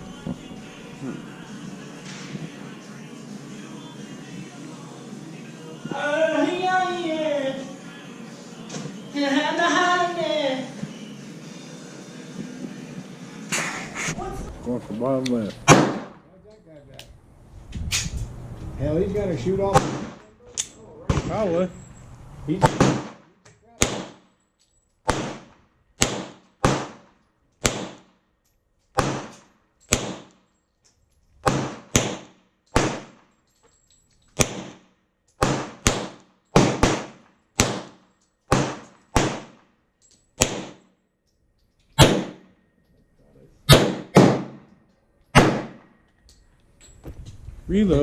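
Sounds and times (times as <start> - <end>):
gunshots with echo: 15.7 - 16.3, 19.7 - 20.2, 22.6 - 24.3, 25.1 - 28.1, 29.0 - 30.3, 31.4 - 33.2, 34.4 - 39.6, 40.4 - 40.8, 42.0 - 42.5, 43.7 - 44.7, 45.4 - 45.9.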